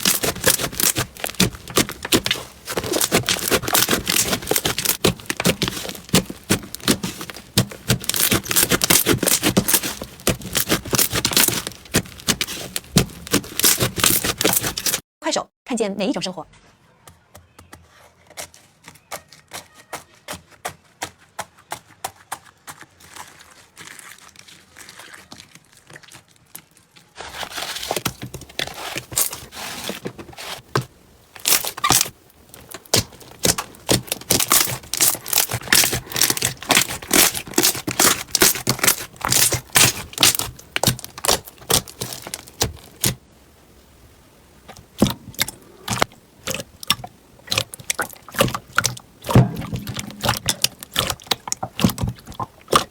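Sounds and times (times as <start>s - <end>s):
slime crackling and popping: 0.0s - 15.0s, 23.0s - 29.5s, 31.4s - 43.2s, 44.8s - 52.9s.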